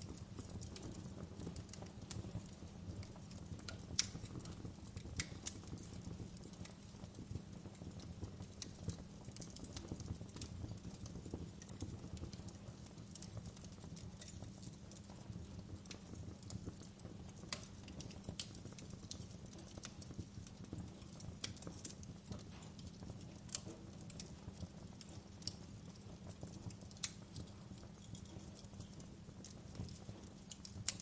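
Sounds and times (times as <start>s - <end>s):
fire crackling and popping: 0.0s - 31.0s.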